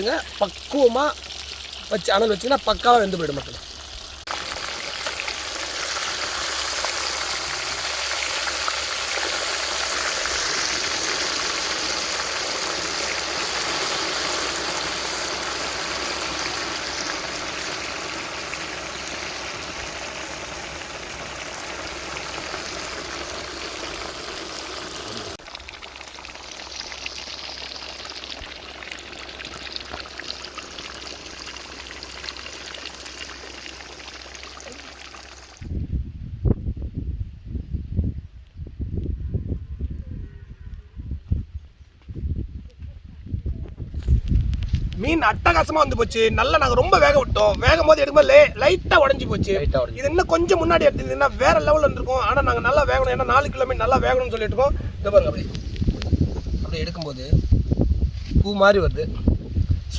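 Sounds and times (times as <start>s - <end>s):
fish deep-frying sizzle: 0.0s - 35.7s
oil crackling: 0.0s - 35.7s.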